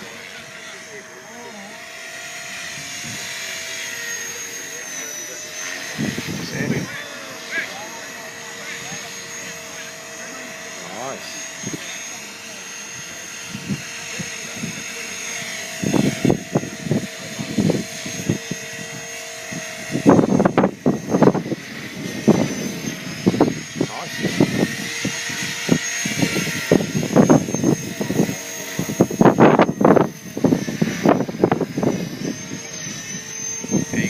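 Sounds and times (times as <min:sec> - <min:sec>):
helicopter motor and rotor whine: 0:00.0 - 0:34.0
wind buffeting microphone: 0:02.6 - 0:03.4, 0:05.9 - 0:07.0, 0:13.4 - 0:14.8, 0:15.4 - 0:34.0.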